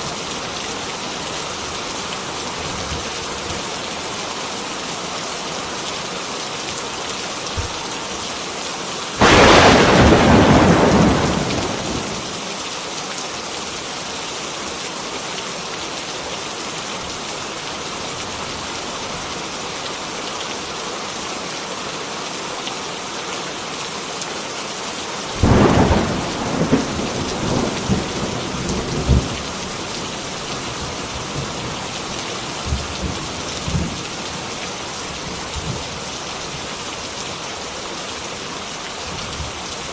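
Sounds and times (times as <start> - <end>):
heavy rain falling: 0.0 - 39.9
thunderclaps rumbling: 9.2 - 12.5, 25.4 - 34.0.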